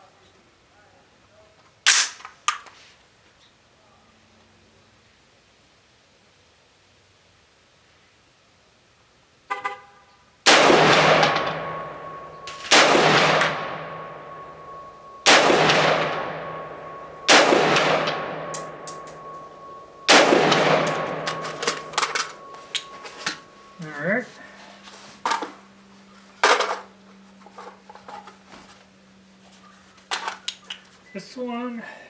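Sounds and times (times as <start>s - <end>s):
rifle shots echoing: 10.5s - 23.6s
brief tone: 11.4s - 12.7s, 13.4s - 17.3s, 17.9s - 25.0s.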